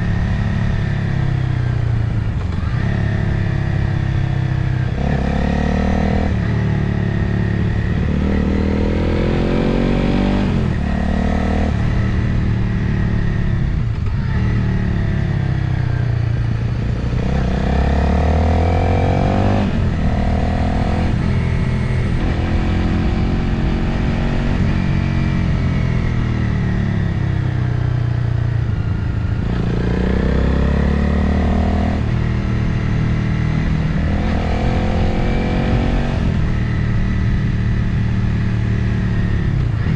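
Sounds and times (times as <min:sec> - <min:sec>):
motorcycle engine accelerating: 0:00.0 - 0:39.9
wind rushing over microphone: 0:31.4 - 0:39.9.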